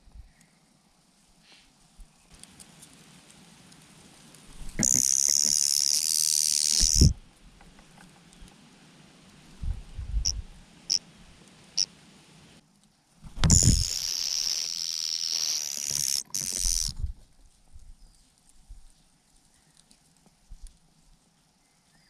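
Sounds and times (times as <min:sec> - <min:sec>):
loud bird hissing: 0:04.7 - 0:07.2, 0:13.5 - 0:16.9
low thumps: 0:06.8 - 0:07.2.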